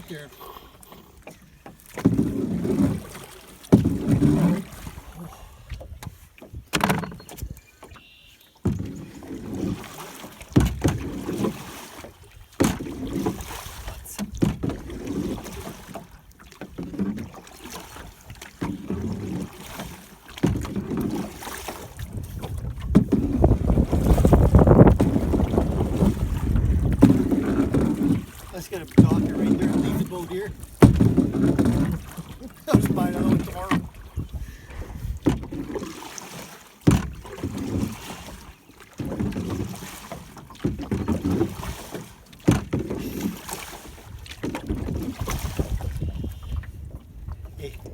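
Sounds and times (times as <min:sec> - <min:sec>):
oar splashing in water: 0:00.0 - 0:47.9
wind buffeting microphone: 0:21.9 - 0:32.1, 0:32.7 - 0:35.5, 0:44.0 - 0:47.9.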